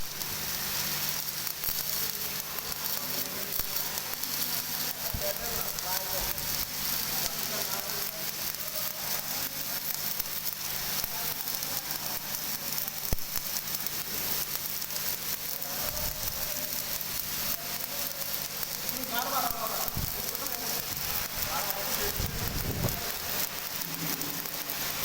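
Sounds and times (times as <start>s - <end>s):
welding arc crackling: 0.0s - 25.0s.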